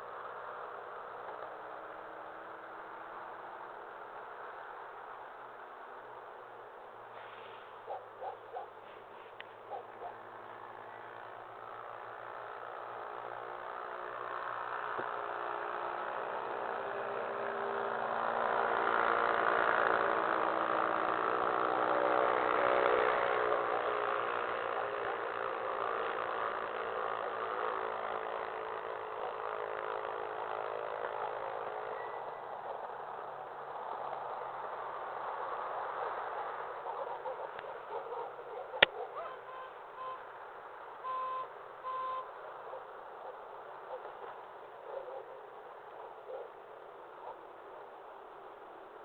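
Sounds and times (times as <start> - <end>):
motor engine running: 7.4 - 46.5.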